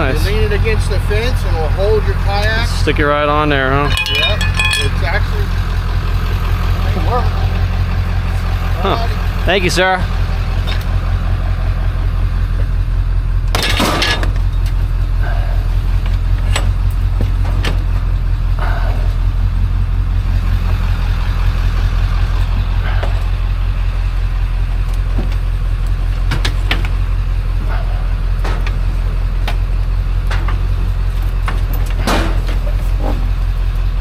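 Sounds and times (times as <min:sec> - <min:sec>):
vehicle engine humming: 0:00.0 - 0:34.0
loud rattle or scrape: 0:03.8 - 0:05.1.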